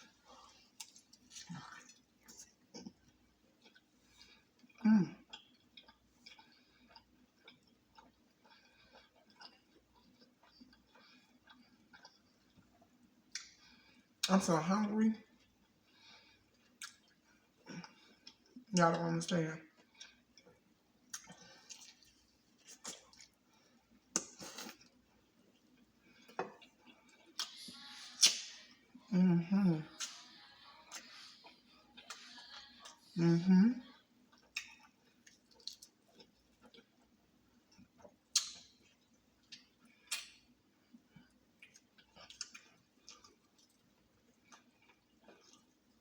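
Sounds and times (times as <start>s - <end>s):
noisy chewing: 0.0s - 14.4s, 29.8s - 33.2s, 33.8s - 38.8s
wet mouth clicks chewing: 4.6s - 13.6s, 16.6s - 17.2s, 26.2s - 28.7s, 34.3s - 37.1s, 38.0s - 38.8s
mouth clicks and crunches: 25.7s - 28.7s, 34.3s - 37.1s, 38.0s - 38.8s.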